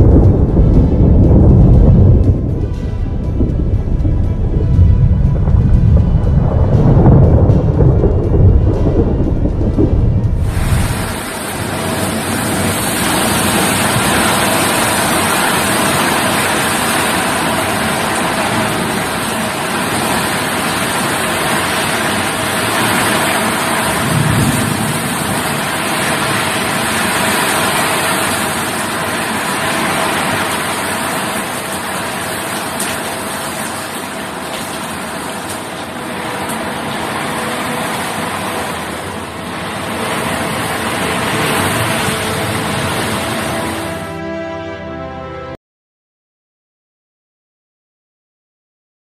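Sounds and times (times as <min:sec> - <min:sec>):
short low rumble: 0:00.0 - 0:11.3
heavy rain pouring: 0:00.0 - 0:44.5.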